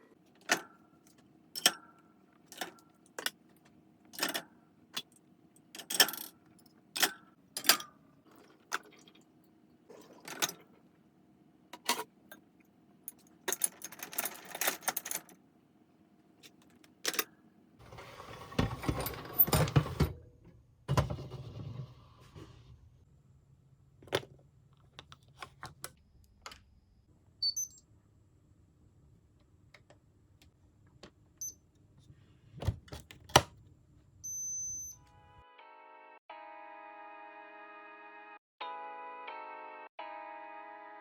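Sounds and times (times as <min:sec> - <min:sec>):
kitchen items clinking and knocking: 0:17.0 - 0:20.2.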